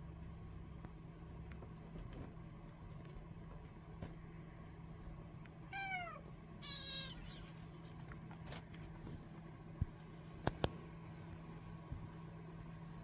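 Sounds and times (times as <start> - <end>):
steady low hum: 0.0 - 13.0
kitten mewing: 5.7 - 7.6.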